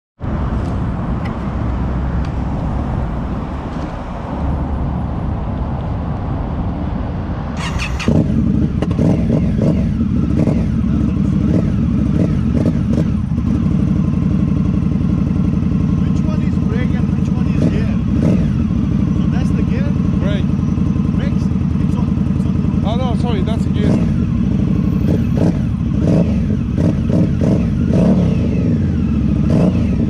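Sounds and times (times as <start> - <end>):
motorcycle engine running: 7.6 - 30.0.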